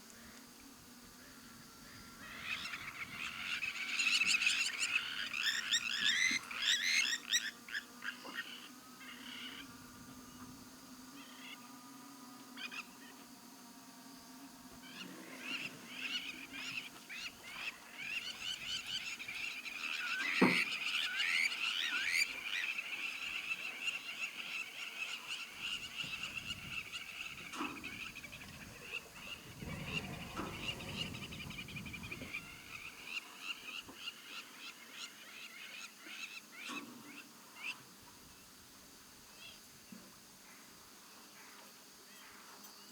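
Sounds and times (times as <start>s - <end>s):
frogs chirping and trilling: 14.9s - 36.8s.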